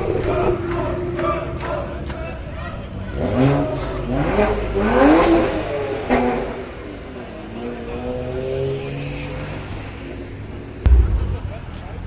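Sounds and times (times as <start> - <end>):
sharp bang: 10.9 - 12.0.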